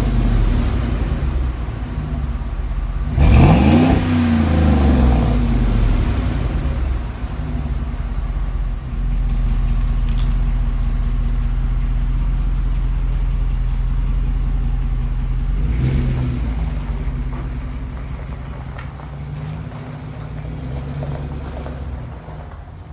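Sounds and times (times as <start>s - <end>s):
truck engine idling: 0.0s - 22.9s
truck pulling away: 0.0s - 22.9s.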